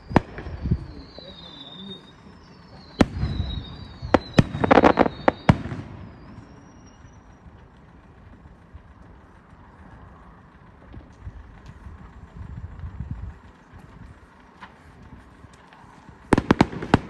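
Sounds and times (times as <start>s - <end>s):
distant firework bangs: 0.0s - 7.1s, 16.3s - 17.0s
high wavering whistles: 0.0s - 7.7s
firework crackling pops: 0.0s - 9.2s, 12.8s - 17.0s.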